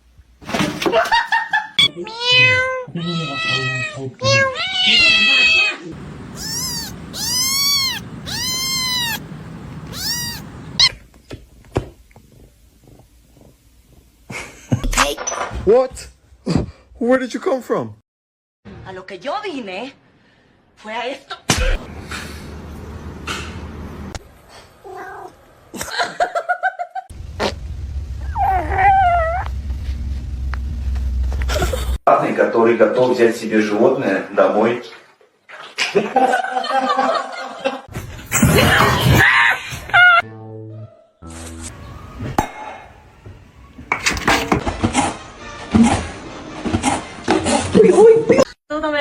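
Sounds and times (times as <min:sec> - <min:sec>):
cat meowing: 0:02.1 - 0:11.0.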